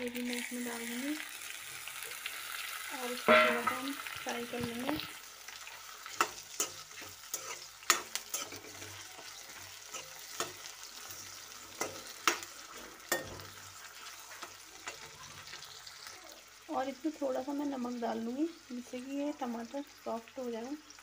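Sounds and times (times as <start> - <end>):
vegetables sizzling in hot oil: 0.0 - 21.0
metal spatula scraping a pan: 3.2 - 4.9, 5.5 - 15.7.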